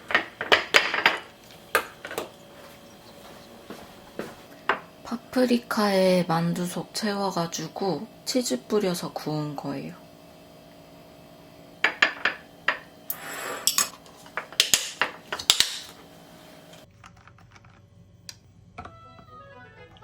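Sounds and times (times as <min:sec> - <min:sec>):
utensils clinking on dishes: 0:11.9 - 0:15.9.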